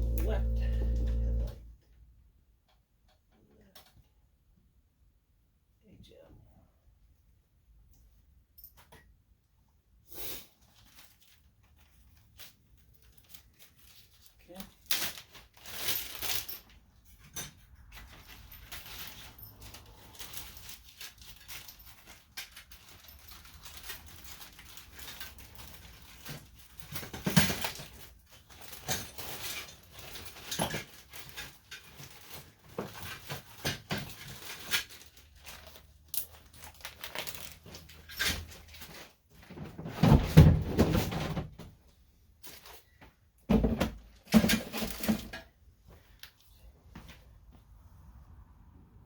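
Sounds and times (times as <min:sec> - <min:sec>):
car parts and bags being handled: 0:00.0 - 0:01.7, 0:10.6 - 0:41.0, 0:41.7 - 0:43.4.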